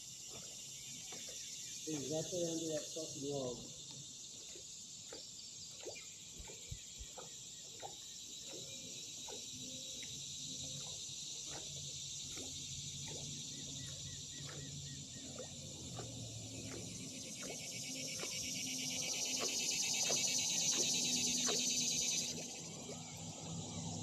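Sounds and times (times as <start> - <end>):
insect chorus: 0.0 - 24.0
short chirping calls: 18.2 - 22.7.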